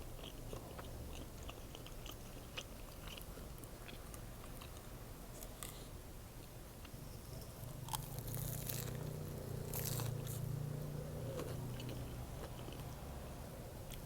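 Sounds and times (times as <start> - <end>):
biting and chewing sandwich: 6.8 - 13.1
crisp crunches: 7.9 - 10.4.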